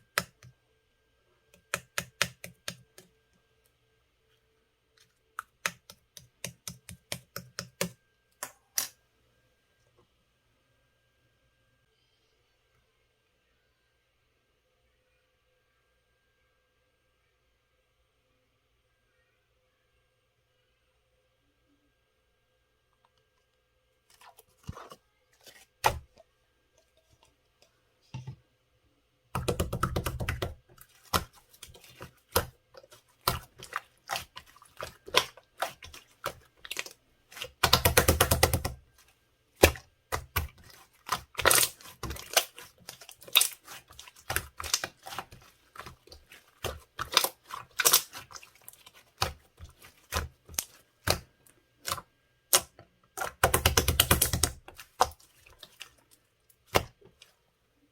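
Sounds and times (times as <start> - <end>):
slime squishing and popping: 29.4 - 38.8, 39.6 - 56.0.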